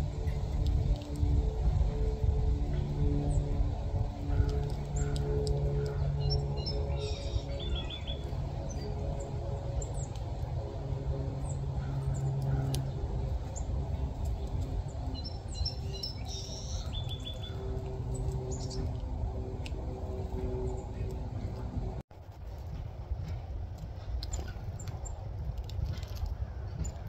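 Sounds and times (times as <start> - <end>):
steady low hum: 0.0 - 27.0
bird chirps: 15.1 - 18.9.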